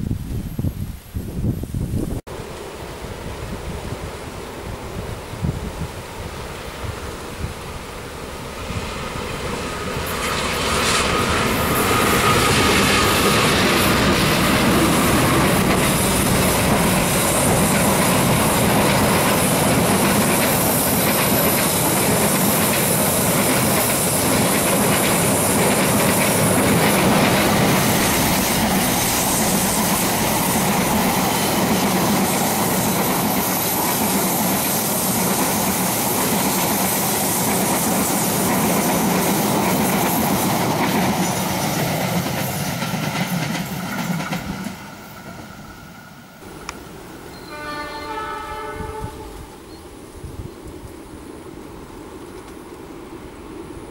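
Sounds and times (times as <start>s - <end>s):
high wheel squeal: 10.2s - 14.1s
train wheels clattering over joints: 11.3s - 45.4s.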